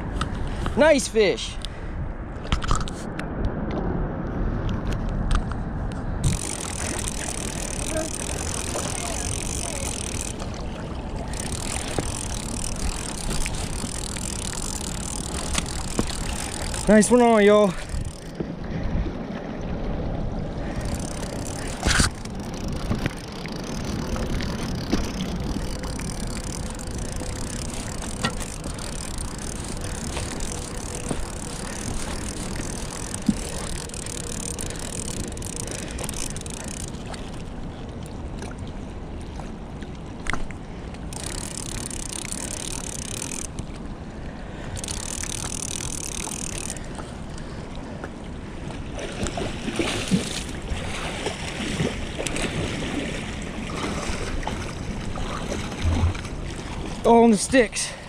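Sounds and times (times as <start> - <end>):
wind on microphone: 1.6 - 39.4, 48.7 - 57.0
sharp clicks: 6.2 - 10.6, 11.3 - 18.4, 20.7 - 37.1, 41.1 - 43.7, 44.8 - 46.9
fishing reel cranking: 6.2 - 18.4, 20.6 - 37.6, 41.1 - 43.8, 44.6 - 47.2.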